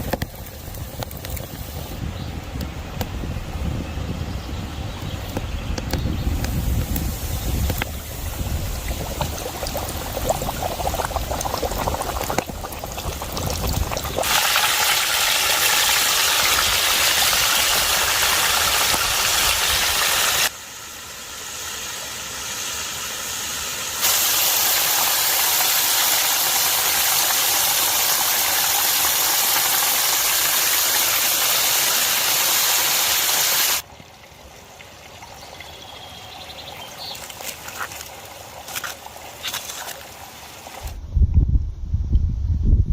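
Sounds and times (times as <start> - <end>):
stream water rushing: 6.4 - 20.6, 23.6 - 35.3, 36.6 - 40.9.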